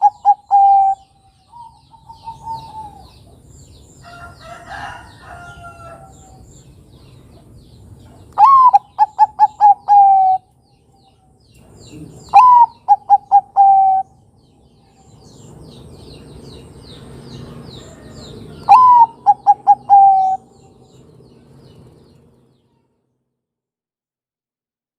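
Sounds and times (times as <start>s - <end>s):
dove cooing: 0.0s - 3.4s, 8.4s - 10.5s, 11.9s - 14.2s, 17.5s - 20.8s
small birds chirping: 0.0s - 22.9s.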